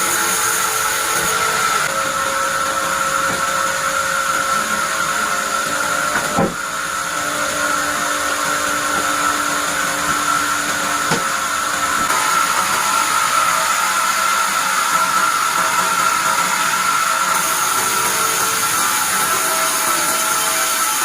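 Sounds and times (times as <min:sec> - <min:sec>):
bandsaw whining: 0:00.0 - 0:21.0.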